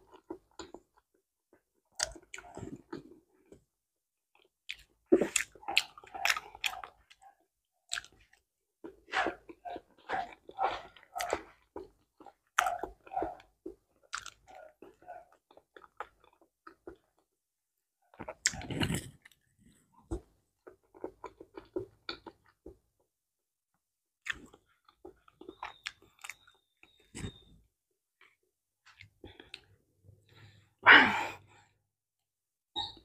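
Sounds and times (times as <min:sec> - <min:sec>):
soft chewing with wet clicks: 0:00.0 - 0:03.7, 0:04.3 - 0:17.3, 0:20.1 - 0:23.1, 0:24.2 - 0:27.4.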